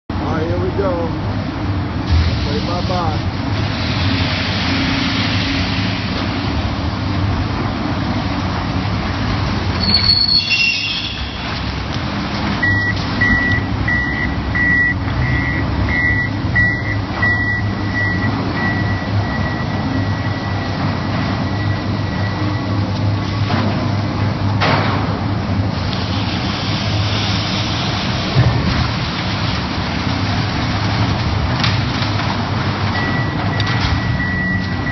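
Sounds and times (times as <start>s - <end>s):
heavy vehicle engine running: 0.1s - 34.9s
brief high squeal: 9.8s - 11.4s
high beeps: 12.6s - 20.7s, 33.0s - 34.9s.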